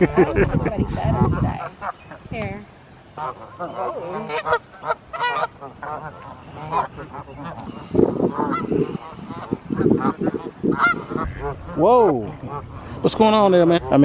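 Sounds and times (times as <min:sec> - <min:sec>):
geese honking: 0:00.0 - 0:14.0.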